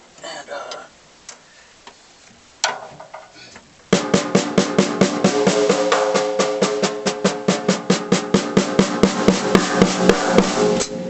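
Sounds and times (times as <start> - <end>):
snare drum strokes ringing: 4.0 - 11.0.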